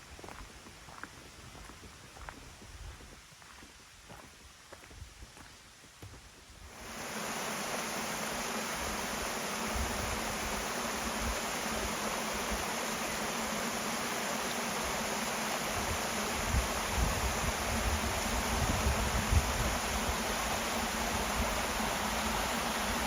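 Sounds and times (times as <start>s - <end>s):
mountain stream rushing: 6.7s - 23.0s.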